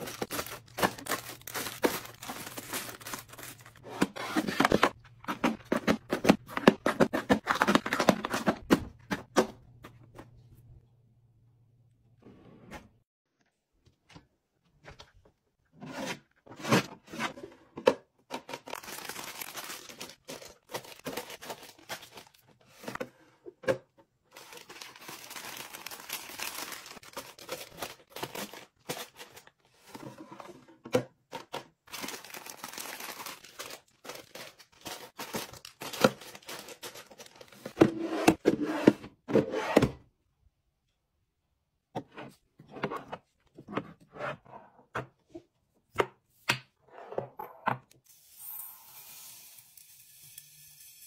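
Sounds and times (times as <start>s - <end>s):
packaging tearing and crinkling: 0.0s - 3.8s, 18.6s - 22.4s, 24.4s - 29.4s, 31.9s - 37.6s.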